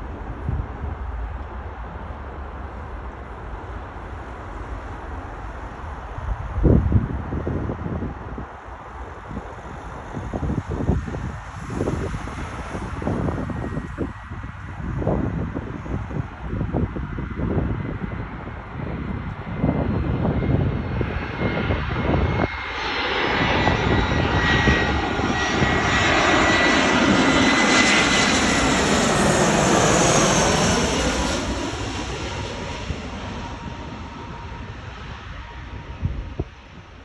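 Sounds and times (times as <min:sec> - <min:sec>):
jet engines whining: 0:09.3 - 0:37.0.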